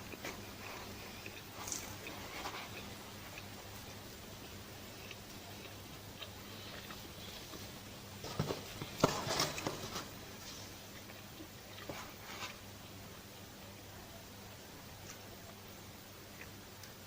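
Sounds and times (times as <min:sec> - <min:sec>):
chewing and biting crackles: 0:00.0 - 0:12.7, 0:16.2 - 0:17.0.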